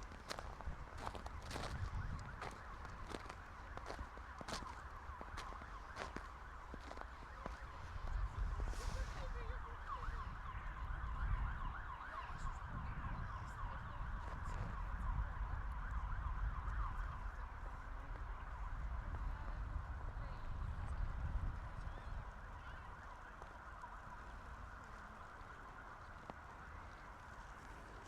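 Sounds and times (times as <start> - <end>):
footsteps walking: 0.0 - 7.7
low rumble of wind: 0.0 - 28.0.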